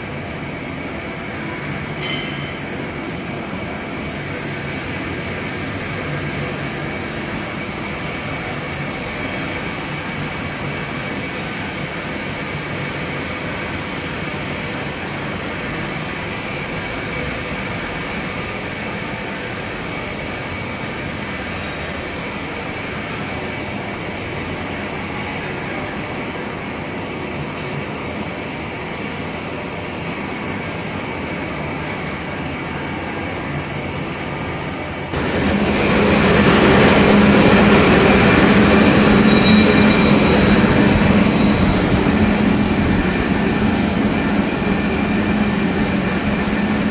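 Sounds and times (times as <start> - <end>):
lathe running: 35.1 - 46.9
faint high whine: 35.2 - 46.9.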